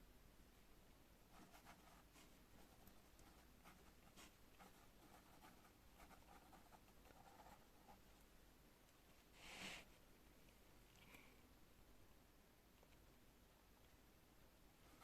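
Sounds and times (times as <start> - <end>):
pen scratching on paper: 1.3 - 8.0.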